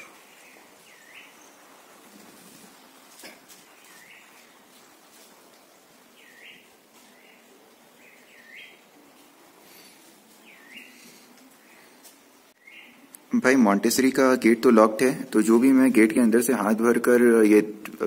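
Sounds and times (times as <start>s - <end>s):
bird chirps: 0.0s - 1.8s, 6.2s - 8.8s, 10.4s - 11.9s, 12.6s - 13.1s
faint steady hiss: 0.0s - 18.0s.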